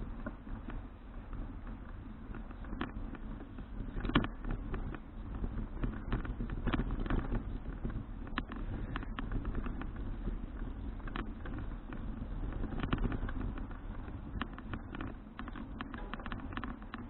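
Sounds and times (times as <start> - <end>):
bicycle clicks and knocks: 0.0 - 17.0.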